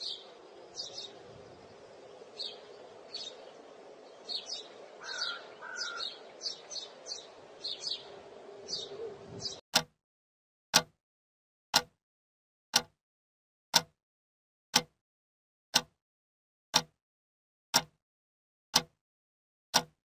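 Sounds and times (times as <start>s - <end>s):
faint steady hum: 0.0s - 9.6s
small birds chirping: 0.0s - 9.6s.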